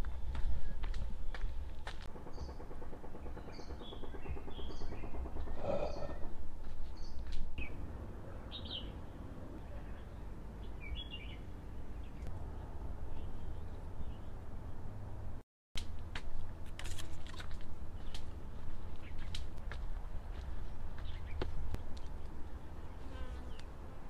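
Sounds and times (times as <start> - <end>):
small birds chirping: 2.2 - 12.3, 17.9 - 19.5, 20.3 - 23.8.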